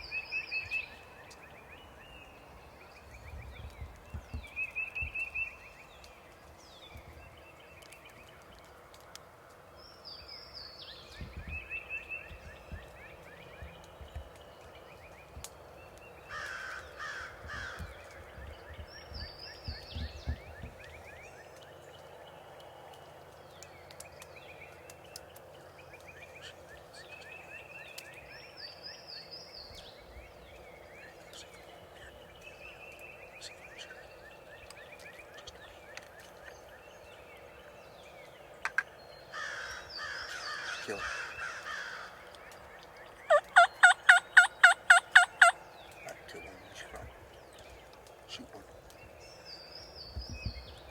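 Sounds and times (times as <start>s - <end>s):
birds chirping and trilling: 0.0s - 50.9s
turkeys gobbling: 43.3s - 45.6s.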